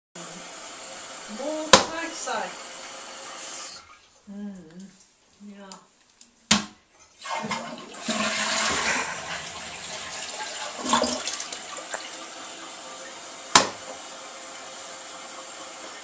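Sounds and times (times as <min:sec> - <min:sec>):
toilet flushing: 0:00.2 - 0:04.1, 0:07.2 - 0:16.0.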